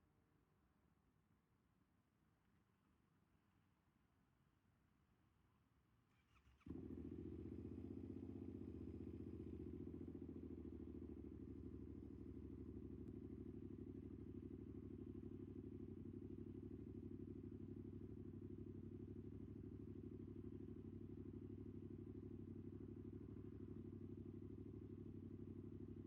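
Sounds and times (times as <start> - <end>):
motorcycle engine idling: 6.4 - 26.0.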